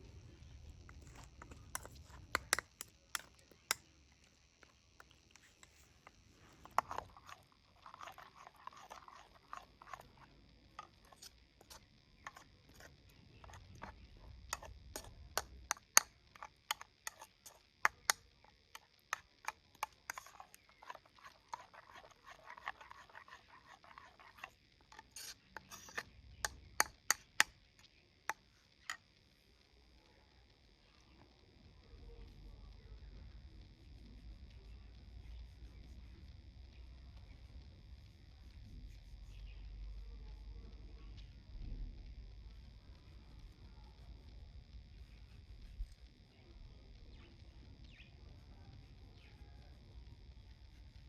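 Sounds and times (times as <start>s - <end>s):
utensils tapping dish: 0.9s - 3.8s.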